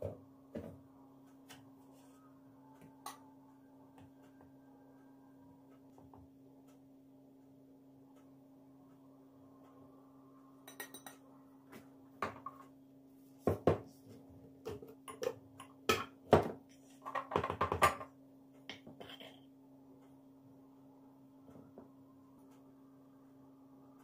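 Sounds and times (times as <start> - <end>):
dishes and utensils clinking: 10.7 - 11.2, 18.7 - 19.4.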